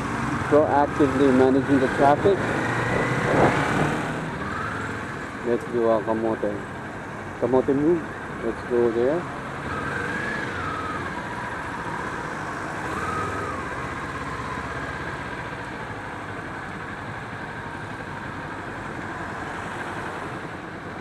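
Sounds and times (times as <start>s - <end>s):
motorcycle engine running: 0.0s - 21.0s
traffic noise: 0.0s - 21.0s
wind rush: 2.6s - 4.2s.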